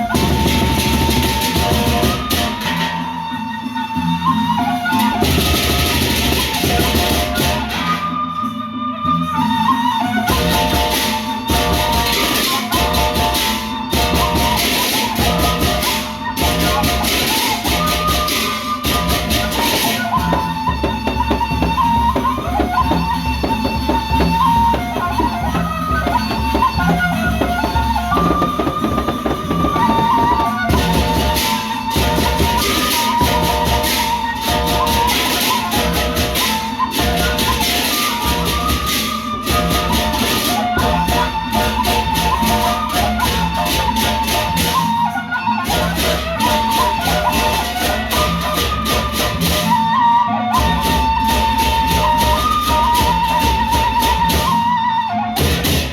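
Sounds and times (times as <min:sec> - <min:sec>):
large drums beating: 0:00.0 - 0:07.8, 0:09.9 - 0:45.1
loud clashing cymbals: 0:00.0 - 0:08.6, 0:09.2 - 0:22.0, 0:22.6 - 0:49.8.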